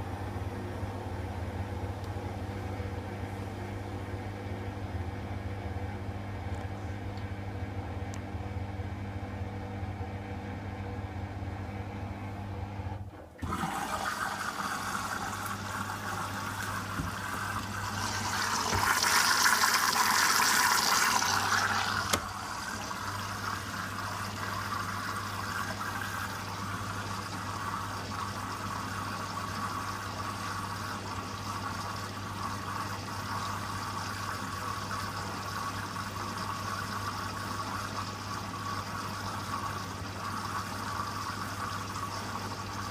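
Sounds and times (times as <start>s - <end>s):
washing machine hum: 0.0s - 42.9s
water rushing into drum: 13.4s - 42.9s.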